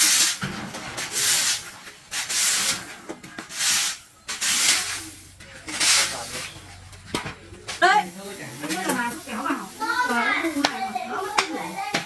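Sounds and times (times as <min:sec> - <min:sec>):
rough rubbing strokes: 0:01.0 - 0:06.6.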